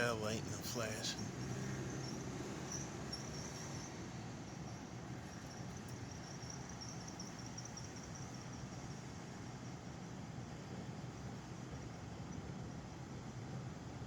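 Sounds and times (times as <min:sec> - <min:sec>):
crickets chirping: 0:00.0 - 0:09.8.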